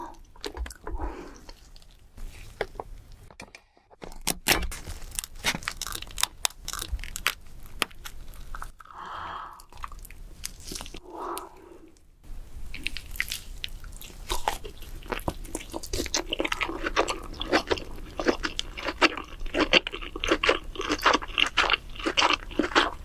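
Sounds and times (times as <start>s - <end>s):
chewing: 12.7s - 23.0s.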